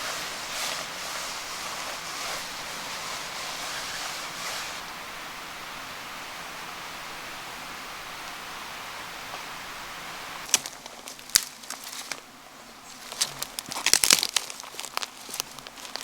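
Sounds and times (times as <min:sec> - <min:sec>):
irregular rustling: 0:00.0 - 0:05.0, 0:10.4 - 0:16.0
steady hiss: 0:00.0 - 0:16.0.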